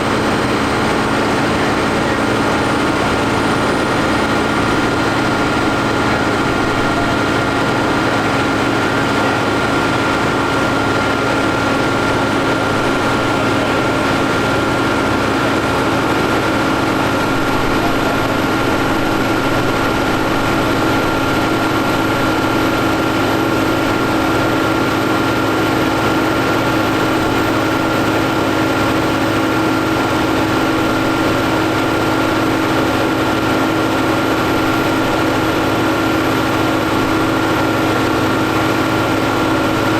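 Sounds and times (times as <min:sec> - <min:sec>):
steady whine: 0:00.0 - 0:24.6
tractor diesel engine running: 0:00.0 - 0:39.9.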